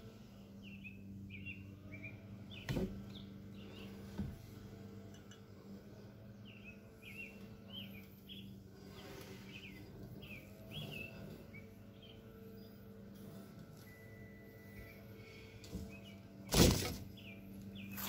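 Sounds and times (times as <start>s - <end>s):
low steady hum: 0.0s - 18.0s
bird chirping: 0.6s - 4.0s, 6.4s - 12.9s, 13.8s - 16.5s, 17.1s - 18.0s.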